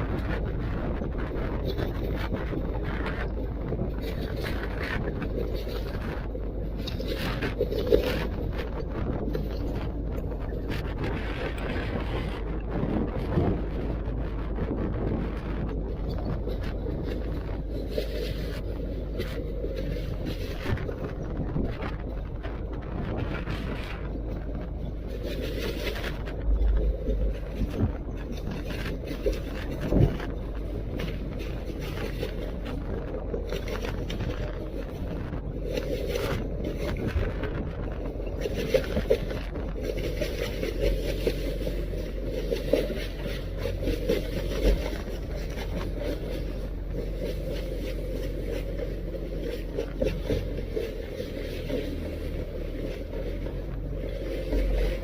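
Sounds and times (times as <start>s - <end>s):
boat engine and wind rumble: 0.0s - 55.0s.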